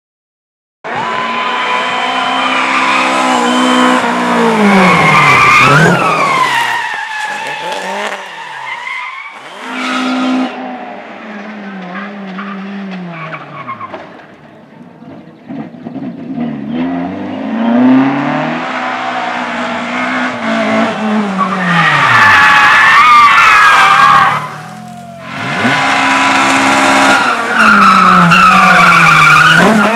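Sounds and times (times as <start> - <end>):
rally car engine revving: 0.9 - 29.9
tyres skidding on loose surface: 1.0 - 16.2, 18.6 - 29.9.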